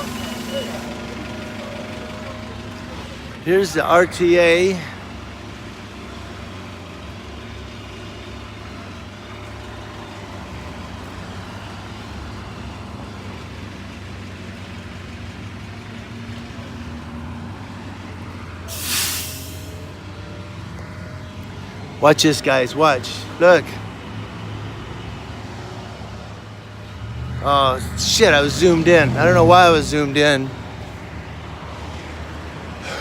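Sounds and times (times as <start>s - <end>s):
air brakes hissing: 0.0s - 1.1s, 18.7s - 19.9s
bus engine humming: 0.0s - 33.0s.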